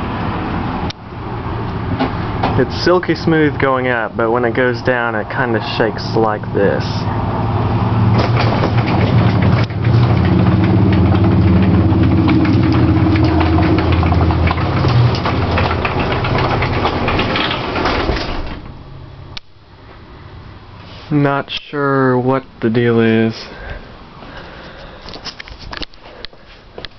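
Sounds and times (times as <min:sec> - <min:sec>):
garage door opener motor humming: 0:07.9 - 0:19.2
garage door rattling: 0:08.0 - 0:19.0.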